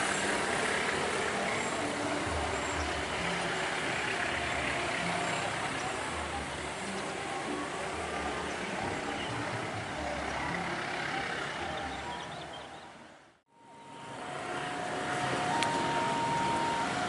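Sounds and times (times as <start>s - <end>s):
road traffic rumble: 0.0s - 17.0s
steady high tone: 13.5s - 17.0s.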